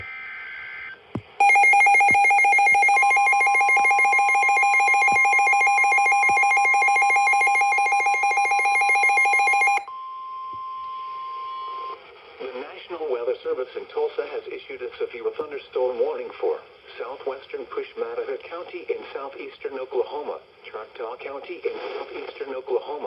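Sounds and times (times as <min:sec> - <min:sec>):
steady warning alarm tone: 0:01.4 - 0:09.9
warbling alarm: 0:01.4 - 0:09.9.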